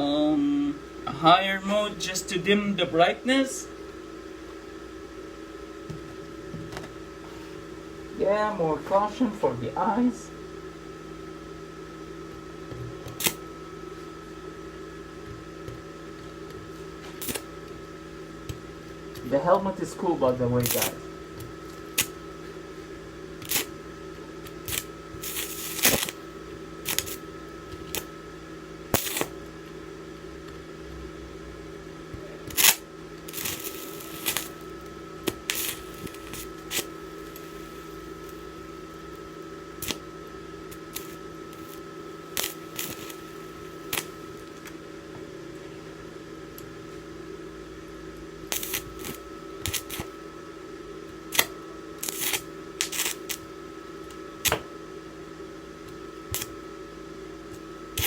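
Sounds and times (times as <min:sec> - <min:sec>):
welder electrical hum: 0:00.0 - 0:58.0
welding crackles and pops: 0:12.7 - 0:13.5, 0:15.2 - 0:22.7, 0:23.4 - 0:28.2, 0:28.8 - 0:29.8, 0:32.1 - 0:44.8, 0:48.4 - 0:50.2, 0:51.1 - 0:54.7, 0:55.8 - 0:56.6, 0:57.5 - 0:58.0.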